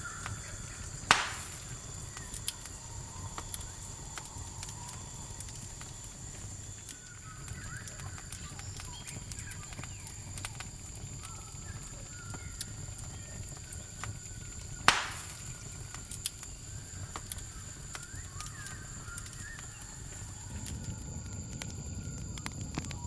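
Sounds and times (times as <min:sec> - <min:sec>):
campfire crackling: 0:00.0 - 0:23.0
high-pitched insect trill: 0:00.0 - 0:23.0
loud snap: 0:01.0 - 0:02.6, 0:14.9 - 0:15.6.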